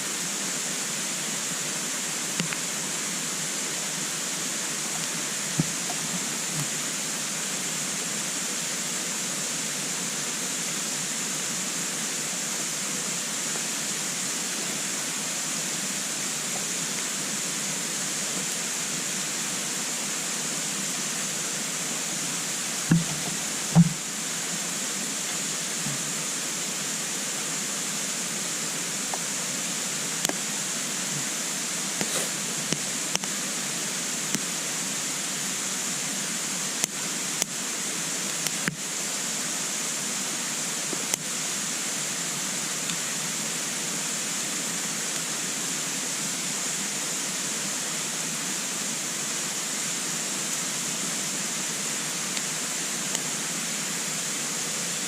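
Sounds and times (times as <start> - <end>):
steady hiss: 0.0 - 55.0
wood crackling and popping: 4.9 - 6.8, 22.9 - 24.0.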